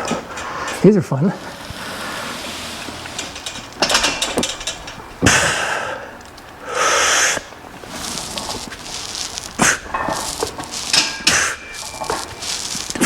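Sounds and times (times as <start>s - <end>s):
forceful hissing exhalations: 0.5s - 4.5s, 5.2s - 13.0s.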